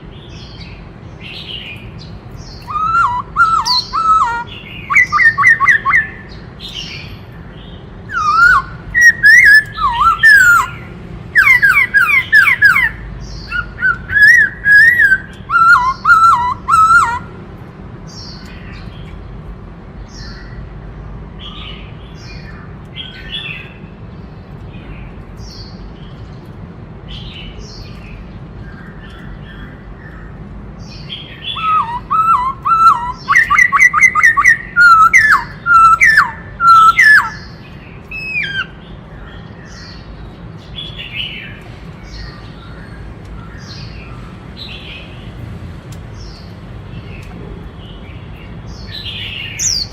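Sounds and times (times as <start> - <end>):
bird whistled song: 0.2 - 17.3, 30.8 - 45.0, 48.1 - 49.9.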